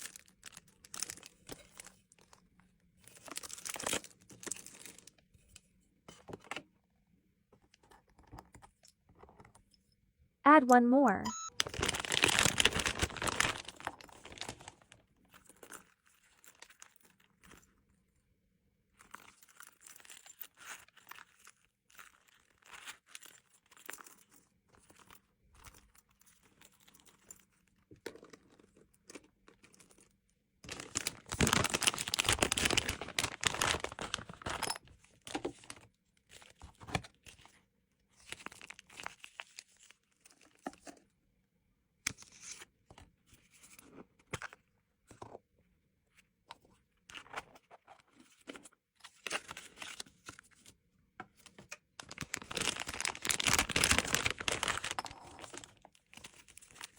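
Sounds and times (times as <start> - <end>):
plastic packaging crinkling: 0.0 - 2.3, 3.2 - 5.1, 11.6 - 15.0, 30.6 - 35.8, 38.3 - 39.9, 52.0 - 56.9
packaging tearing: 11.6 - 14.9, 30.7 - 34.6, 52.0 - 55.8.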